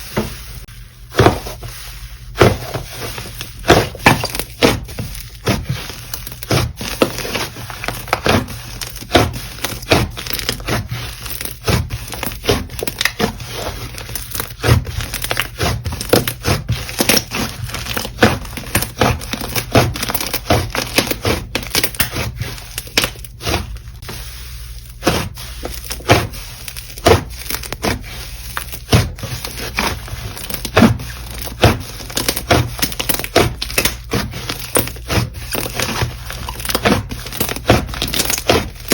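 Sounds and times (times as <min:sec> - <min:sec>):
slime crackling and popping: 0:25.0 - 0:38.9.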